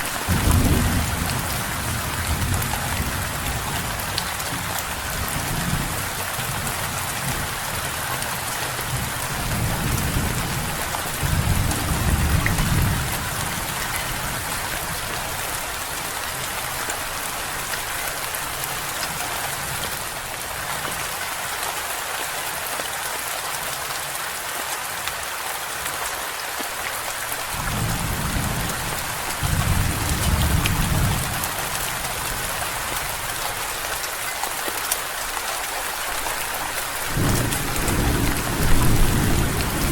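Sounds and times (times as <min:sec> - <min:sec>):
heavy rain: 0:00.0 - 0:39.9
low rolls of thunder: 0:00.2 - 0:03.9, 0:37.1 - 0:39.9.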